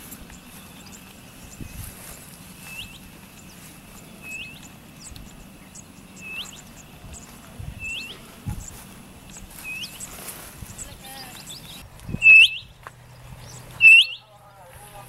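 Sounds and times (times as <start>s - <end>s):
faint high chirps: 0.0s - 14.4s
bird whistle rising at end: 6.2s - 6.7s, 12.2s - 12.7s, 13.8s - 14.3s.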